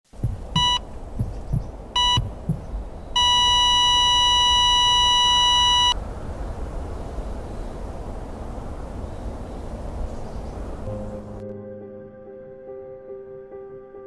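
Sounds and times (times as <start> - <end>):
low heartbeat thumps: 0.1 - 2.9
heart monitor beeping: 0.1 - 6.0
flatline tone: 0.6 - 0.8, 3.2 - 6.0.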